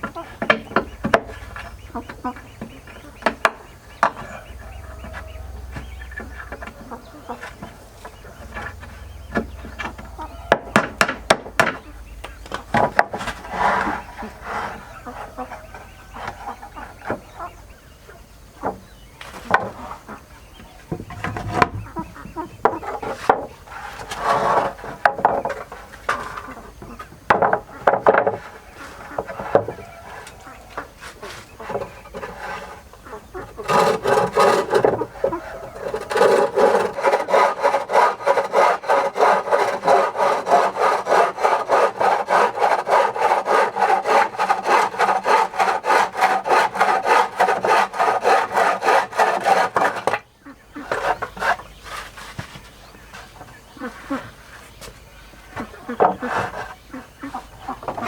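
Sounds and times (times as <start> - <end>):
tool knocking and scraping wood: 0.0 - 17.3, 18.6 - 19.8, 20.9 - 22.0, 22.6 - 52.8, 55.6 - 56.8
fast stroking on wood: 12.8 - 16.6, 22.6 - 52.8.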